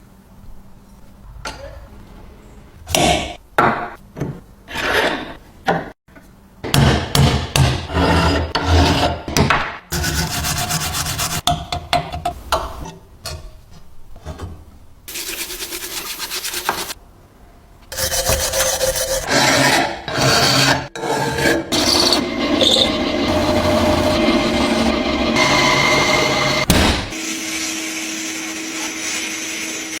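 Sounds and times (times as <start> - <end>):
scraping and filing metal grater: 9.9 - 11.4, 17.9 - 26.6.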